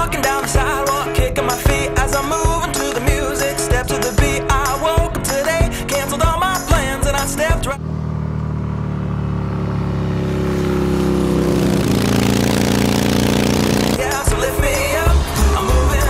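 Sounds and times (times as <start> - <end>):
song with singing: 0.0 - 7.8, 14.0 - 16.0
motorcycle engine running: 6.3 - 15.9.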